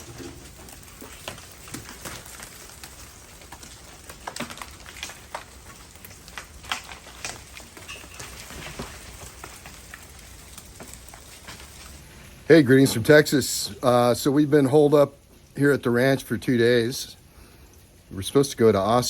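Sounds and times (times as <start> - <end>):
thawing ice ticking: 0.0 - 12.0
meltwater dripping from trees: 0.0 - 12.4.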